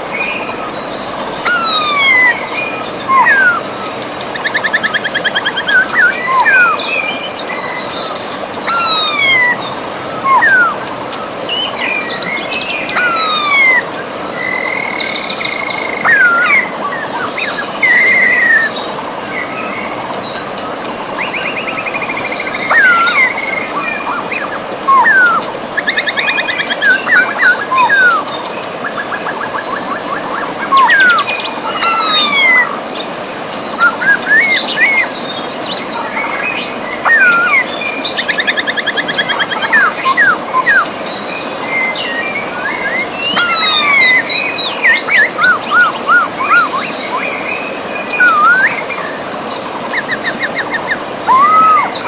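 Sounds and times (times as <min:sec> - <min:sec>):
birds singing and calling: 0:00.0 - 0:52.0
river rushing: 0:00.0 - 0:52.0.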